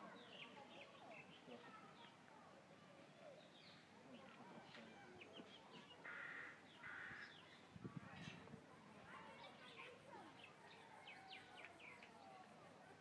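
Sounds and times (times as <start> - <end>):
small birds chirping: 3.0 - 8.5, 9.2 - 12.5
raspy bird calls: 6.0 - 7.5.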